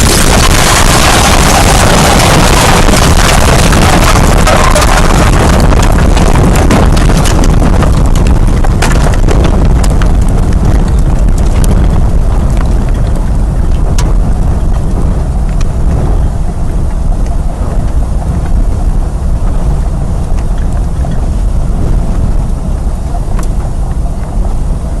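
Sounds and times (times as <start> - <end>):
wind buffeting microphone: 0.0 - 25.0
sharp clicks and knocks: 2.8 - 15.7.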